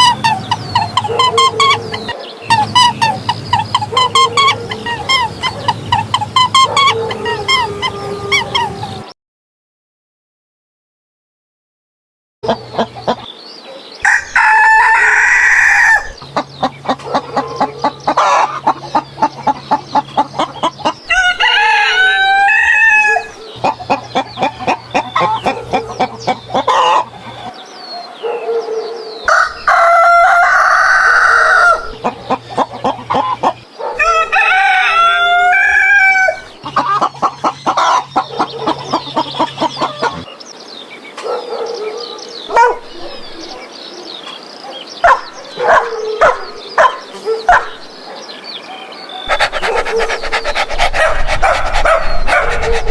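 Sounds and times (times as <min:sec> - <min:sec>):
rooster crowing: 0:00.0 - 0:09.0, 0:14.0 - 0:16.2, 0:21.1 - 0:27.5, 0:29.2 - 0:37.0
hens clucking: 0:00.0 - 0:09.1, 0:12.4 - 0:13.4, 0:14.0 - 0:27.6, 0:29.3 - 0:40.4, 0:49.2 - 0:52.9.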